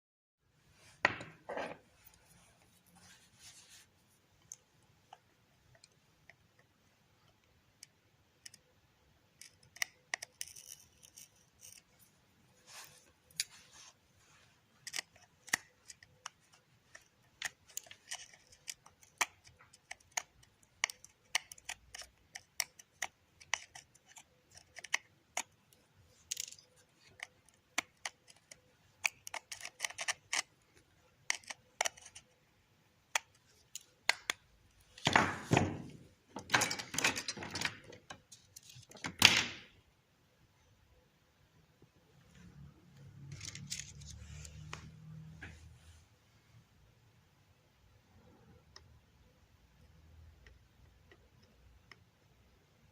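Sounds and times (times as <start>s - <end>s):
hand tools clicking and snipping: 14.8s - 25.6s, 26.2s - 30.5s.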